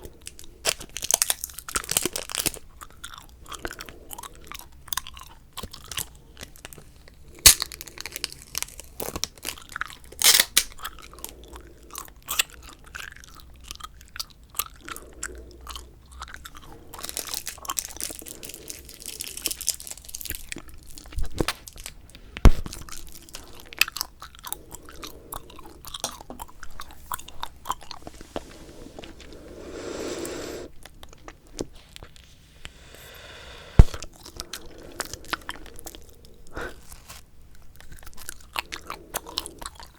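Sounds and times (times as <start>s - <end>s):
gum chewing mouth smacking: 1.6s - 6.8s, 7.4s - 21.4s, 22.6s - 29.6s, 37.6s - 39.9s.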